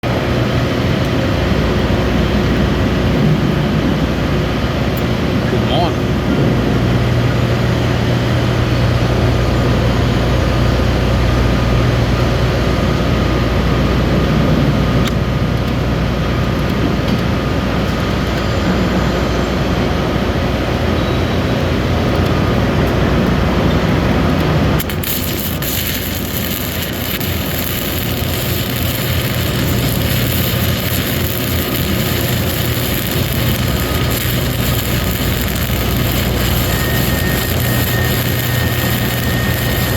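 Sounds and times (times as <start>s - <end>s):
low machine hum: 0.0s - 39.9s
welding hiss: 24.8s - 39.9s.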